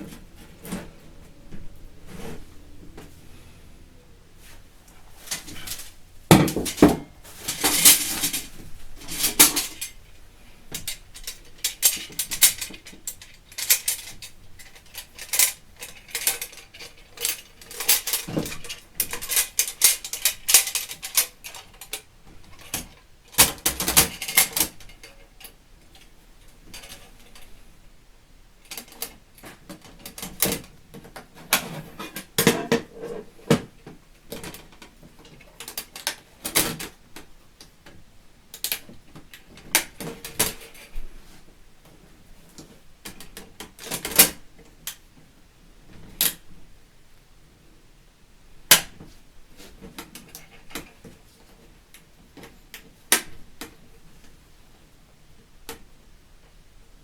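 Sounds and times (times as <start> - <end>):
metal parts clinking and clattering: 5.2 - 10.0, 10.7 - 22.8.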